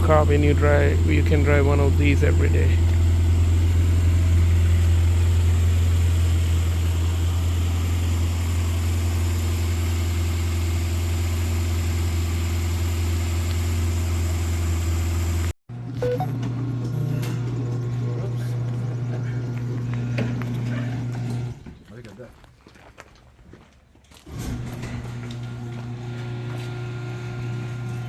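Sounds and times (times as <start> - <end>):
car engine running: 0.0 - 15.5.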